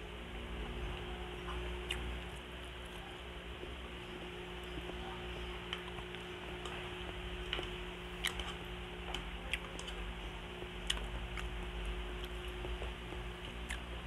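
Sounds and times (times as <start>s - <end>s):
steady low hum: 0.0s - 14.0s
wet chewing and mouth clicks: 1.4s - 3.0s, 7.4s - 10.0s, 10.8s - 13.9s.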